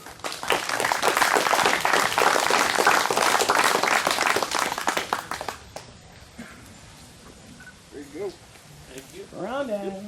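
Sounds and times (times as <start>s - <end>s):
crowd applauding: 0.0s - 5.9s.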